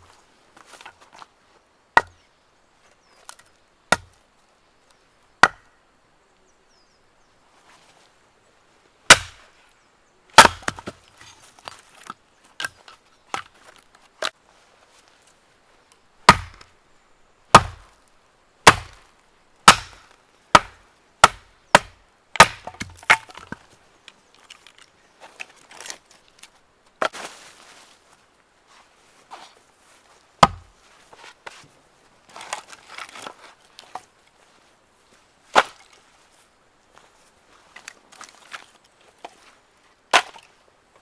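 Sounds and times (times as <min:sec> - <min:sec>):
axe chopping firewood: 0:02.0 - 0:02.2, 0:03.9 - 0:04.2, 0:05.4 - 0:05.7, 0:09.1 - 0:09.5, 0:10.4 - 0:11.0, 0:16.2 - 0:16.7, 0:17.5 - 0:17.9, 0:18.6 - 0:19.0, 0:19.6 - 0:23.6, 0:30.4 - 0:30.7, 0:35.6 - 0:35.8, 0:40.1 - 0:40.5
wood splintering and handling: 0:09.1 - 0:09.6, 0:10.4 - 0:14.4, 0:18.6 - 0:19.0, 0:19.6 - 0:27.4, 0:30.4 - 0:31.7, 0:32.3 - 0:34.1, 0:37.7 - 0:39.5, 0:40.1 - 0:40.6.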